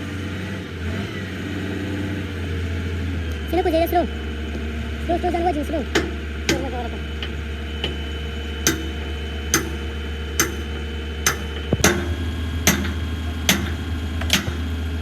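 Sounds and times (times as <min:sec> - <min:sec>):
steady low hum: 0:02.2 - 0:15.0
hammer striking metal: 0:08.6 - 0:09.8, 0:10.4 - 0:14.6.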